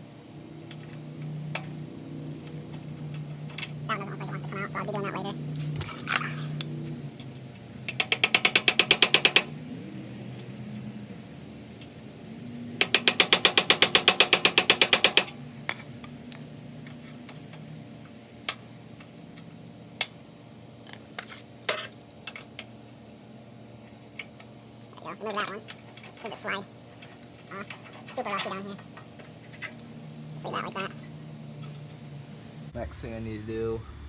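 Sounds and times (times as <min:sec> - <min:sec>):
ratchet wrench clicking: 0:07.9 - 0:09.5, 0:12.8 - 0:15.4.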